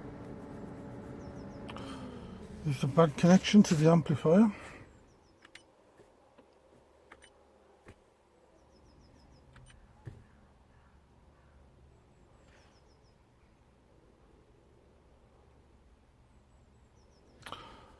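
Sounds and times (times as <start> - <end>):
faint clicks: 17.4 - 17.7.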